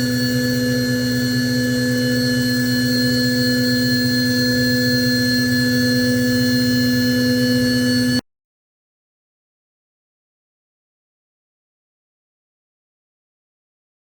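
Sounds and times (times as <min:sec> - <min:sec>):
cnc spindle whining: 0:00.0 - 0:08.2.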